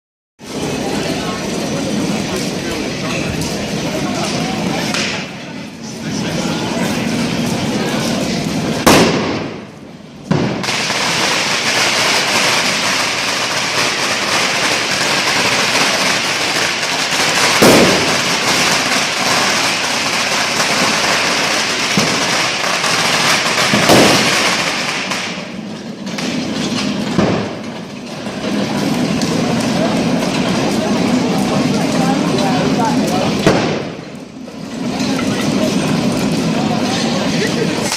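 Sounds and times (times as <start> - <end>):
firework bangs: 0.4 - 37.9
firework crackle: 0.4 - 37.9.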